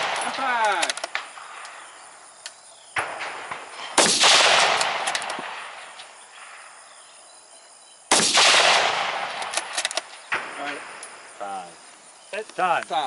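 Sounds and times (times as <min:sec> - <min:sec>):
rifle shots with rolling echo: 0:00.0 - 0:02.0, 0:02.9 - 0:07.1, 0:08.1 - 0:11.3
small clicks: 0:00.6 - 0:01.2, 0:09.4 - 0:10.2.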